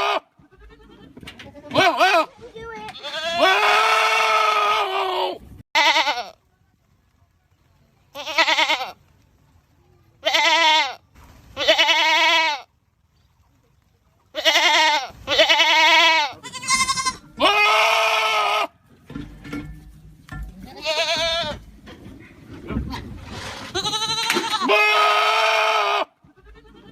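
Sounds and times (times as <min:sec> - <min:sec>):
goats bleating: 0:00.0 - 0:06.4, 0:08.1 - 0:09.0, 0:10.2 - 0:11.0, 0:11.6 - 0:12.7, 0:14.3 - 0:18.7, 0:20.6 - 0:21.6, 0:23.7 - 0:26.9.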